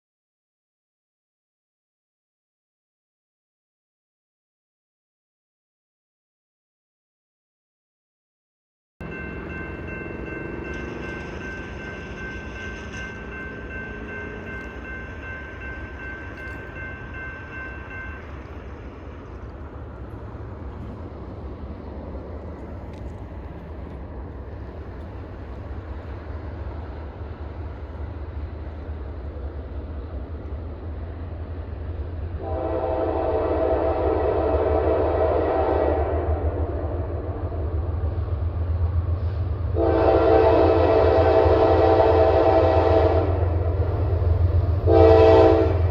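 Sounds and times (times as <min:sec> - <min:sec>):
locomotive engine rumble: 0:09.0 - 0:45.9
locomotive air horn blowing: 0:32.4 - 0:36.6, 0:39.8 - 0:43.6, 0:44.8 - 0:45.9.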